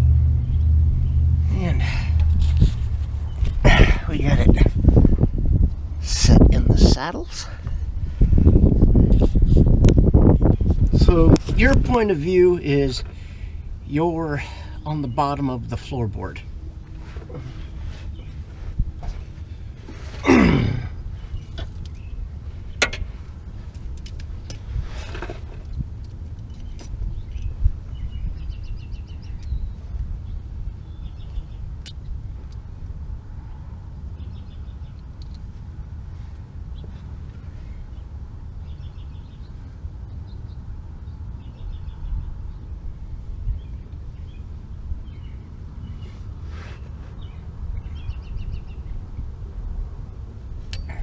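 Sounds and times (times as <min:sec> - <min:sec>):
low background rumble: 0:00.0 - 0:51.0
small birds chirping: 0:00.4 - 0:02.2, 0:03.0 - 0:05.5, 0:08.2 - 0:24.8, 0:25.4 - 0:49.6
light metal clinks: 0:31.8 - 0:32.6, 0:50.7 - 0:51.0.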